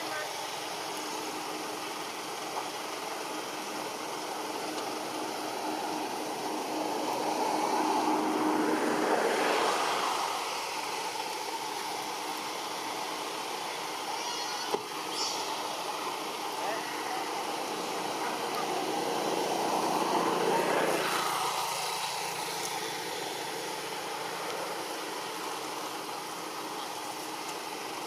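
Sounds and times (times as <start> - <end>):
motor vehicle passing: 4.6 - 13.0, 15.2 - 25.2.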